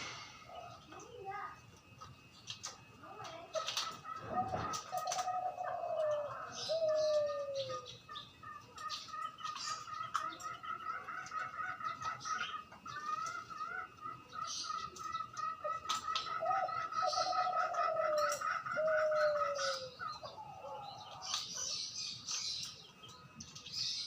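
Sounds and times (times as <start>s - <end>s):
birds twittering: 0.0s - 24.0s
dove cooing: 3.3s - 21.9s.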